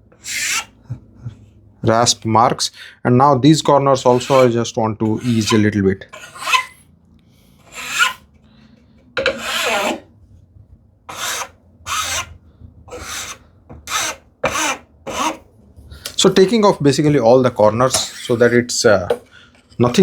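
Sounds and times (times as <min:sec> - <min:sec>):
hand file scraping wood: 0:00.2 - 0:00.8, 0:04.1 - 0:06.8, 0:07.6 - 0:08.2, 0:09.2 - 0:10.1, 0:11.1 - 0:16.8, 0:17.8 - 0:18.7.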